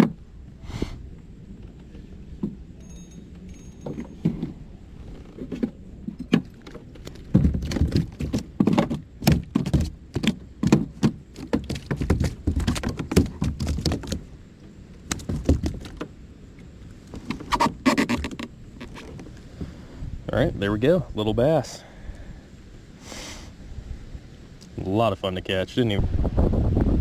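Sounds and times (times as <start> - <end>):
knocks and thuds on a kayak: 0.0 - 0.6, 1.7 - 2.7, 5.3 - 14.4, 15.0 - 16.2.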